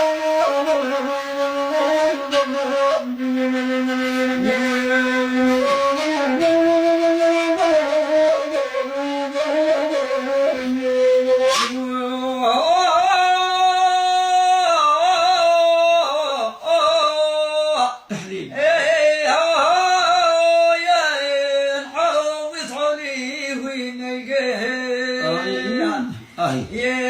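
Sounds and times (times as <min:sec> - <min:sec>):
man singing long held notes: 0:00.0 - 0:03.4, 0:04.0 - 0:27.0.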